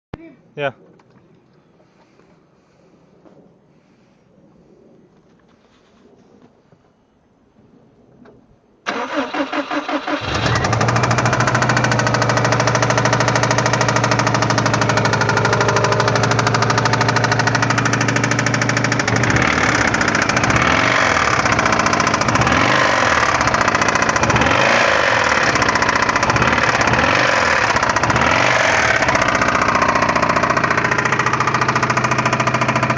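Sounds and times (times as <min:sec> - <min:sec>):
car engine starting and revving: 0:08.9 - 0:32.9
engine knocking: 0:10.1 - 0:32.9.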